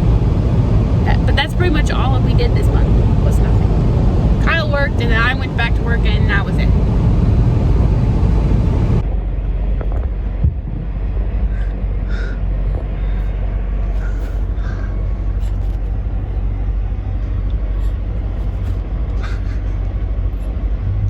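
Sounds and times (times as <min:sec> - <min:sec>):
car cabin rumble: 0:00.0 - 0:09.1.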